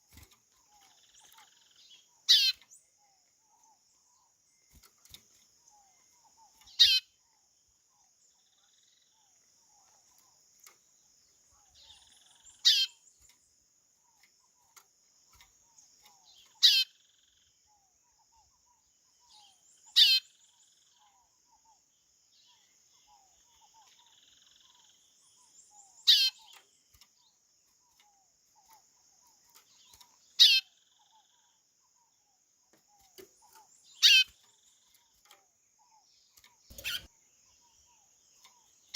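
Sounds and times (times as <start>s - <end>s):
bird whistled calls: 36.7s - 37.1s.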